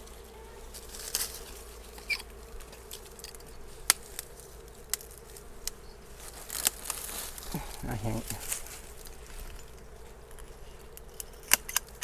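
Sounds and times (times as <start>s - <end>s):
branches clicking and snapping: 0.0s - 12.0s
honeybees buzzing: 0.0s - 12.0s.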